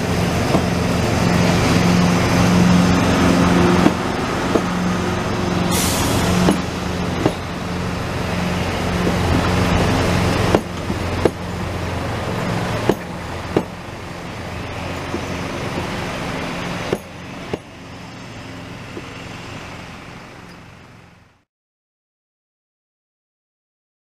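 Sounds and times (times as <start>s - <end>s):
train wheels knocking on rail joint: 0.3s - 0.8s, 3.7s - 4.8s, 6.2s - 7.6s, 8.9s - 13.8s, 14.8s - 17.8s, 18.9s - 19.2s.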